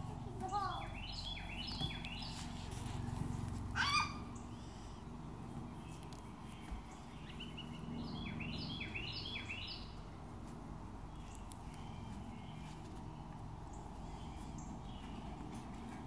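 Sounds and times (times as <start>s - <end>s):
songbird chirping: 0.4s - 3.0s, 3.8s - 16.0s.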